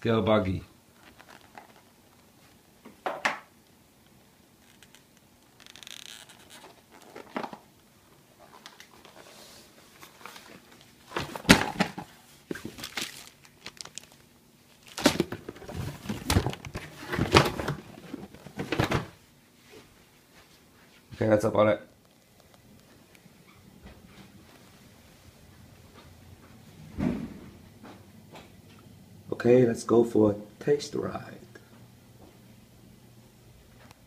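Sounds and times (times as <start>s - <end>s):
plastic packaging crinkling: 0.9s - 2.3s, 4.6s - 7.7s, 10.0s - 18.9s.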